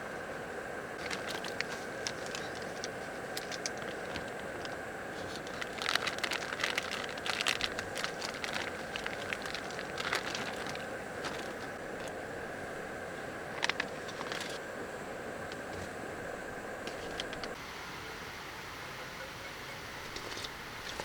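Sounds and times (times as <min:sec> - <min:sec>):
fire hissing: 0:00.5 - 0:17.6
firewood crackling and popping: 0:01.0 - 0:14.7.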